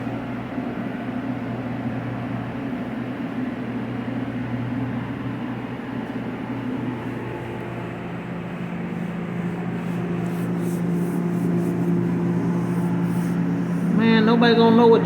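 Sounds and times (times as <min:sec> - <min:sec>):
machine hum: 0:00.0 - 0:15.0
short hissing strokes: 0:08.5 - 0:14.0.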